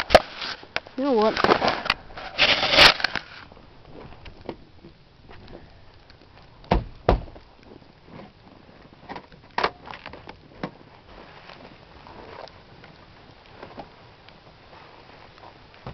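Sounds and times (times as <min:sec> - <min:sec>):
thumps against car door: 0:06.7 - 0:07.3.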